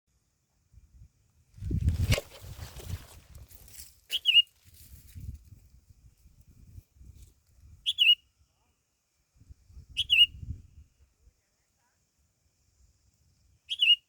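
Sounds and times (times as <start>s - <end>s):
sharp chirping call: 4.1s - 4.5s, 7.8s - 8.2s, 10.0s - 10.4s, 13.7s - 14.0s.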